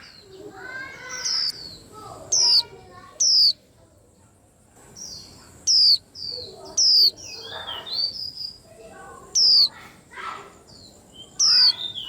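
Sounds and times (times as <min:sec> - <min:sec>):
soft bird chattering: 0:00.0 - 0:03.6, 0:04.2 - 0:12.0
sharp downward-sliding bird calls: 0:03.2 - 0:03.6, 0:05.7 - 0:06.0.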